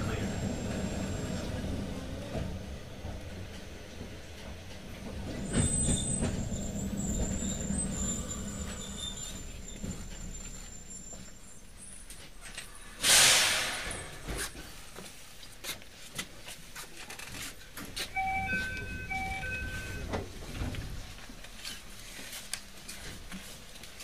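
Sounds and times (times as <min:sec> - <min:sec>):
compressed air hiss: 0:13.0 - 0:14.2
two-note electronic chime: 0:18.2 - 0:20.0.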